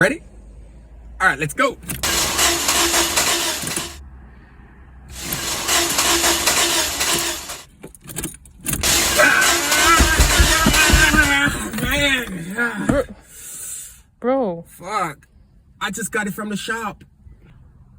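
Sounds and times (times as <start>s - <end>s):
car engine cranking: 1.7s - 4.0s, 5.1s - 13.2s.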